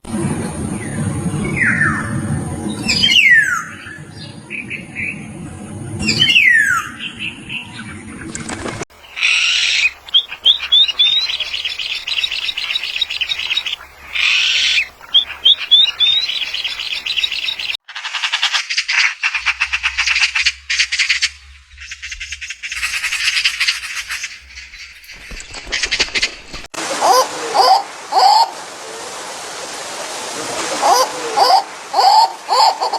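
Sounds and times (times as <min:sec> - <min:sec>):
harsh bird calls: 0:08.9 - 0:28.5
falling whistled bird call: 0:09.0 - 0:17.8
quick repeated bird chirps: 0:09.0 - 0:26.4
rapid bird twittering: 0:09.0 - 0:26.5.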